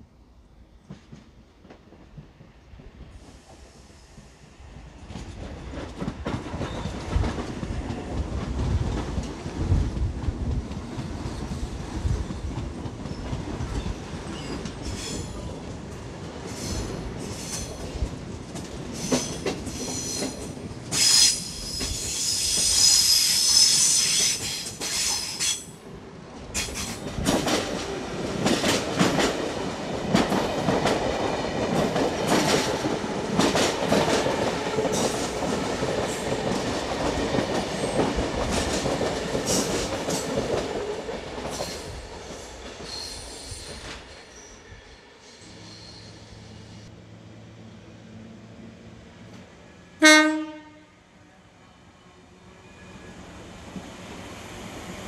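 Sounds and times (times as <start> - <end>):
train rumbling past: 0.0 - 55.0
high wheel squeal: 42.8 - 46.8.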